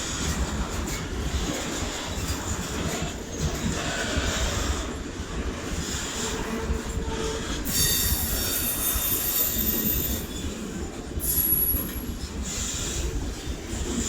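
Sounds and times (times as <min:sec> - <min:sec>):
passing train rumble: 0:00.0 - 0:14.0
train wheels squealing: 0:05.8 - 0:14.0.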